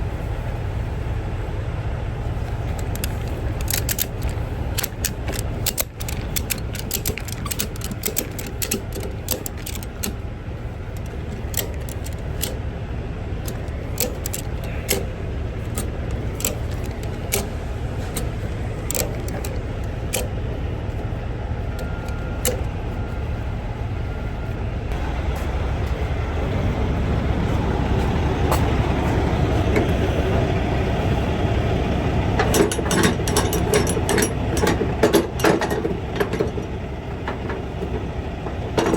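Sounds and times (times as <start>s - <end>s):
ratchet strap clicking: 2.5s - 10.2s, 10.8s - 12.6s, 13.4s - 20.4s.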